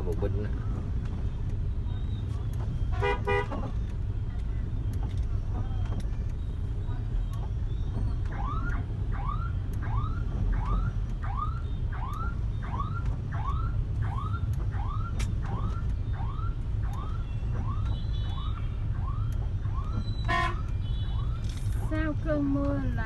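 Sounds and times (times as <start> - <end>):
low rumble of traffic: 0.0 - 23.0
vehicle alarm rising chirp: 6.3 - 21.4.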